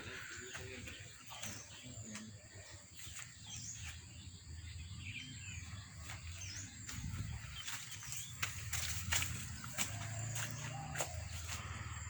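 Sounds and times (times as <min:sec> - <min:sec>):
birds chirping: 0:00.0 - 0:12.0
high insect drone: 0:06.6 - 0:12.0.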